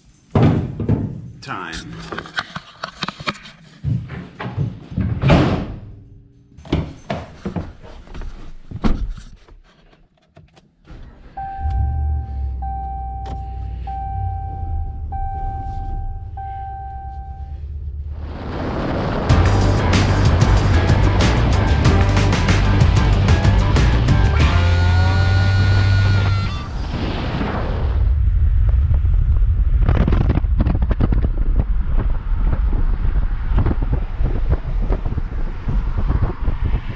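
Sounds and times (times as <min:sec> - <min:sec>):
long electronic beeps: 0:11.4 - 0:17.6, 0:24.5 - 0:26.7.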